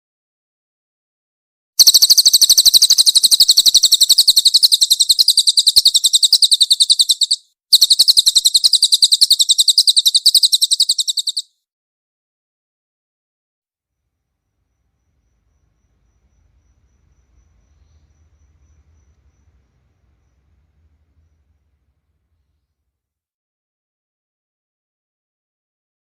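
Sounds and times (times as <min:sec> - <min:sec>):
bird chattering trill: 0:01.8 - 0:11.5.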